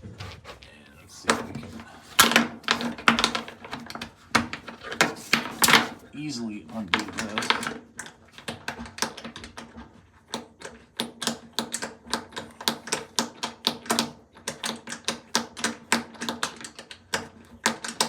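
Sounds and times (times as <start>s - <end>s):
rapid uneven clicking: 6.7s - 18.0s.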